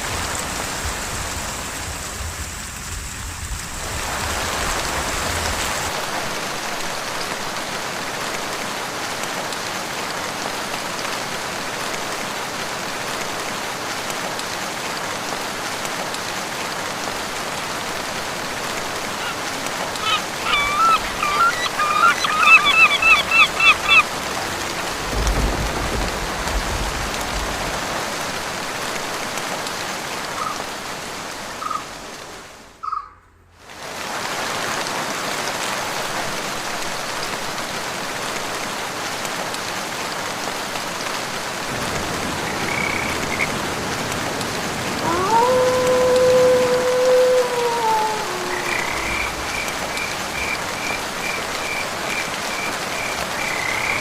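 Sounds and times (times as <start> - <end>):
heavy rain in forest: 0.0 - 54.0
bird calling repeated notes: 20.0 - 24.0, 32.8 - 33.2.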